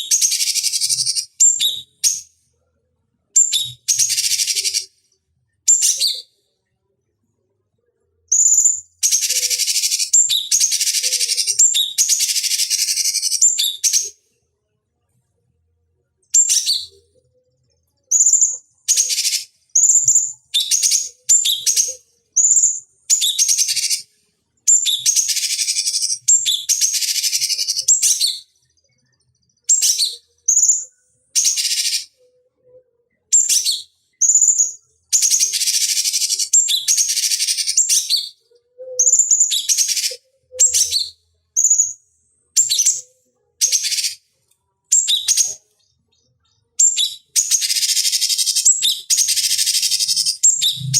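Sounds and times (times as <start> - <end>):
bird singing chirps and whistles: 0.0 - 2.3, 3.4 - 4.9, 5.7 - 6.4, 8.3 - 14.2, 16.3 - 17.1, 18.1 - 24.1, 24.7 - 28.6, 29.5 - 32.2, 33.3 - 42.0, 42.6 - 44.2, 44.9 - 50.9.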